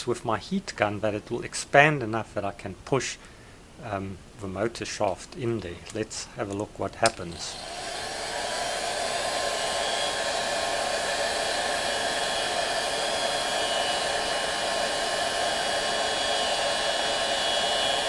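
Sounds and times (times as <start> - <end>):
heat gun blowing: 7.0 - 18.0.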